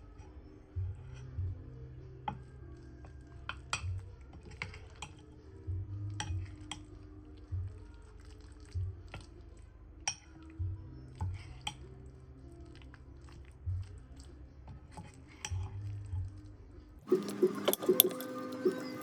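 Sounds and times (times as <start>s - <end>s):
background music: 17.1s - 19.0s
utensils clinking against dishes: 17.1s - 19.0s.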